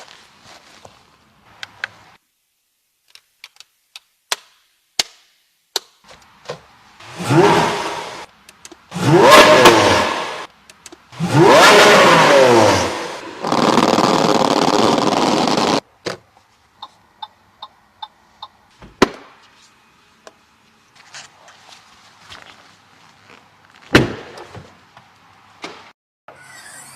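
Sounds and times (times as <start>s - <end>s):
car engine revving hard: 7.0s - 8.3s, 8.9s - 10.5s, 11.2s - 15.8s.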